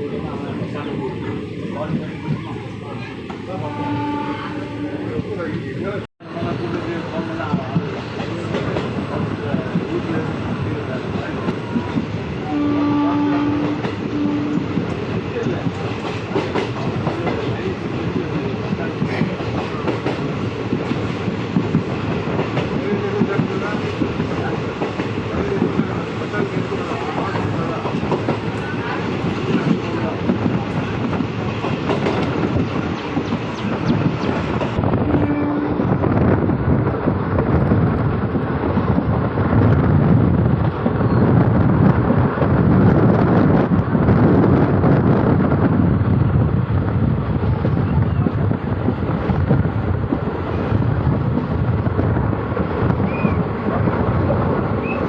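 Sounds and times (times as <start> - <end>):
train coach rumble: 0.0 - 55.0
wind on microphone: 11.1 - 55.0.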